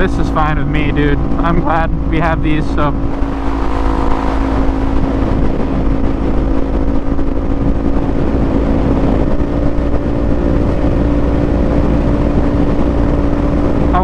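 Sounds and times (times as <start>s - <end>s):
motorcycle engine at high revs: 0.0s - 14.0s
wind rush on microphone: 0.0s - 14.0s.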